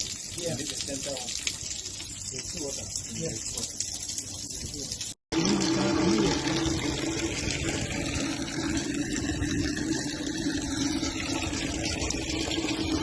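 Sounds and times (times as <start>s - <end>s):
liquid gushing: 0.0s - 13.0s.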